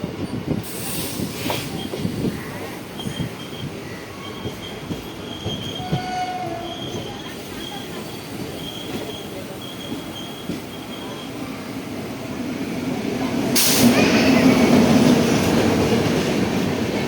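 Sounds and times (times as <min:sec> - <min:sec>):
train rumbling on rails: 0:00.0 - 0:17.0
train wheels squealing: 0:00.7 - 0:11.8.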